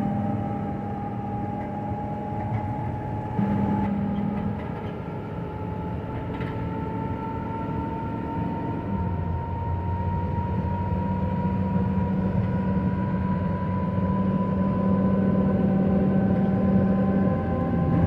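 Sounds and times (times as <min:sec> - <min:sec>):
hydraulics mechanical hum: 0:00.0 - 0:18.0
rising hydraulic whine: 0:00.0 - 0:18.0.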